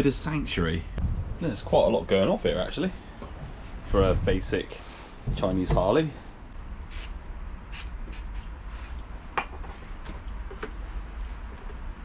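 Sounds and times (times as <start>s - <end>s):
short hissy strokes: 6.9s - 9.0s.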